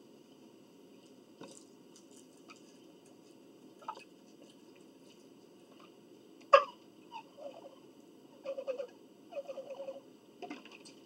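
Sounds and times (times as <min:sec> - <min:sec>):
soft chewing: 0:00.9 - 0:06.0.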